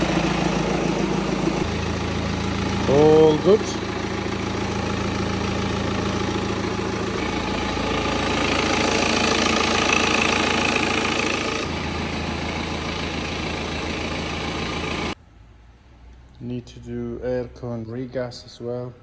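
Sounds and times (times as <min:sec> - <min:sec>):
diesel engine idling: 0:00.0 - 0:15.2.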